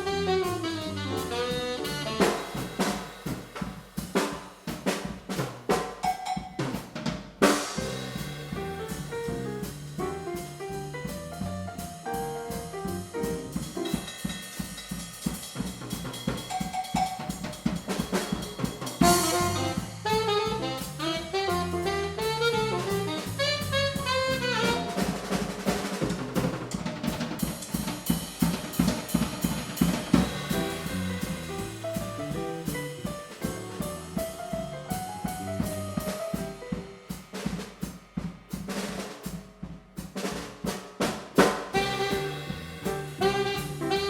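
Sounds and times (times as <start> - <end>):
bass line: 0.0 - 3.0, 7.8 - 13.9, 18.9 - 25.3, 30.0 - 36.2, 41.8 - 44.0
jazz combo playing swing: 0.0 - 39.4, 40.0 - 44.0
drum kit: 0.0 - 44.0
cymbal crash: 2.3 - 4.6, 7.5 - 9.8, 29.8 - 33.6.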